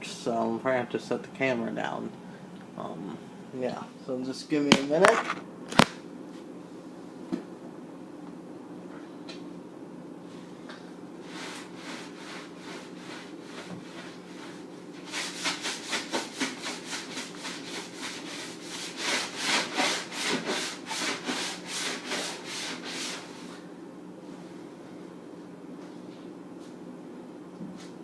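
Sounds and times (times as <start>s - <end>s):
sponge scrubbing: 11.2s - 23.5s.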